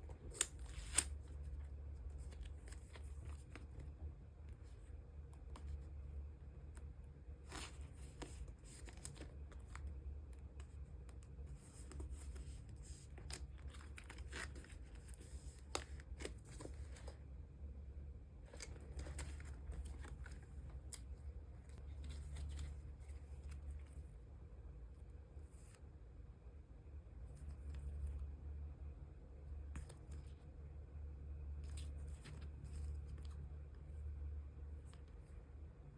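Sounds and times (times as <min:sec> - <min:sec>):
plastic sleeves rustling: 0:00.0 - 0:06.1, 0:06.7 - 0:17.3, 0:18.4 - 0:24.2
low steady hum: 0:00.0 - 0:35.9.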